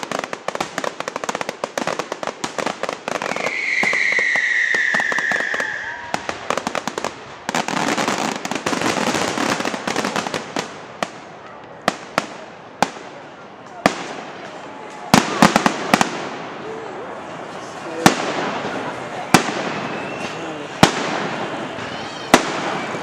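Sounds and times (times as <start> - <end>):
whistling firework: 0.0 - 13.0, 18.0 - 23.0
fireworks crackling bangs: 0.0 - 23.0.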